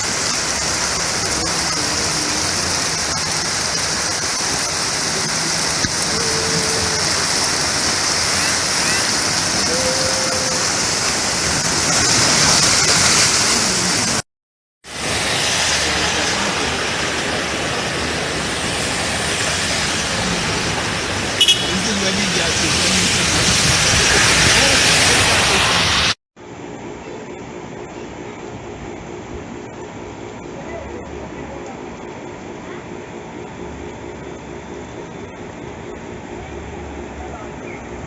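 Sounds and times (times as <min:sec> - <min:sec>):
heavy rain pouring: 0:00.0 - 0:14.2, 0:14.8 - 0:26.2
rushing runoff water: 0:00.0 - 0:14.2, 0:14.8 - 0:26.2.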